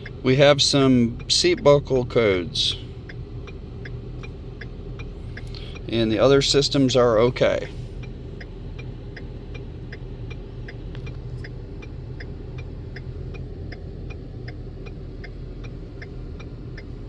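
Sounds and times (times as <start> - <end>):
engine idling: 0.0 - 17.0
light regular ticking: 0.0 - 17.0.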